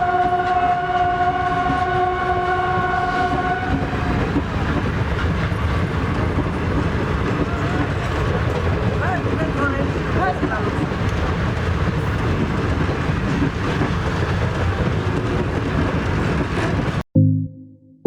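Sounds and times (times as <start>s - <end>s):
train horn chord: 0.0s - 4.2s
passing train rumbling: 0.0s - 17.0s.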